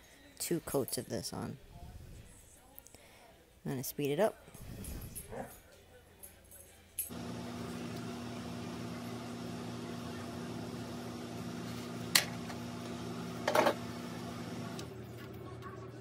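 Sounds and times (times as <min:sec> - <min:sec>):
low mechanical hum: 0:07.1 - 0:16.0.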